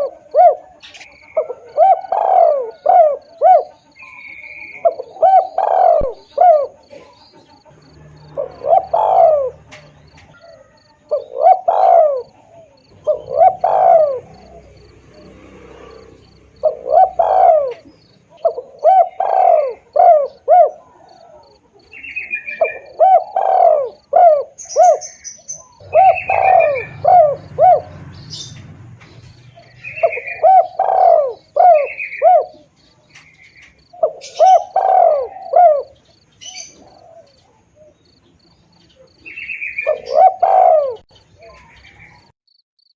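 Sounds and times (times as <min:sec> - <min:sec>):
dove cooing: 0:00.0 - 0:42.3
small birds chirping: 0:00.0 - 0:42.9.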